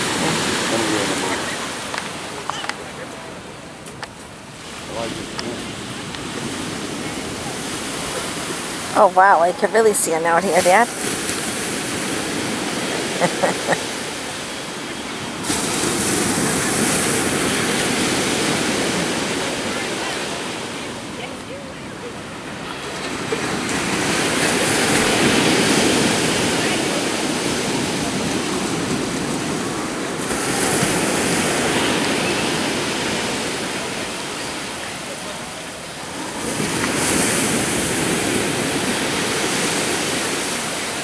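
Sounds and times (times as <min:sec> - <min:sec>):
wave breaking: 0:00.0 - 0:03.9
ocean surf washing on beach: 0:00.0 - 0:41.0
short calls: 0:12.2 - 0:15.5.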